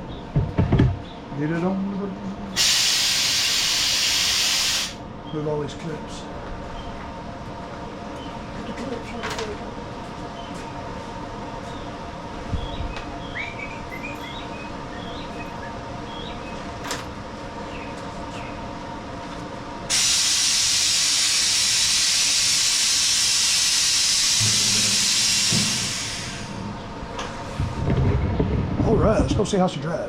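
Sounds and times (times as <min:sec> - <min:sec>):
compressed air hissing: 0:02.6 - 0:05.0, 0:19.9 - 0:27.0
low steady hum: 0:24.4 - 0:30.0.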